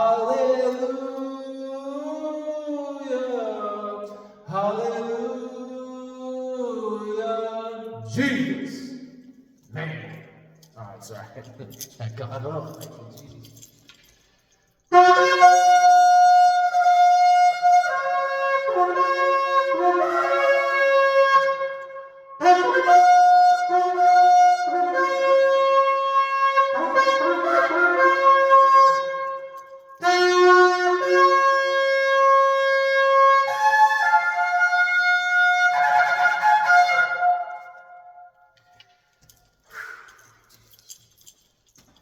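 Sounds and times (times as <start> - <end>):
shofar blasts: 14.9 - 38.6.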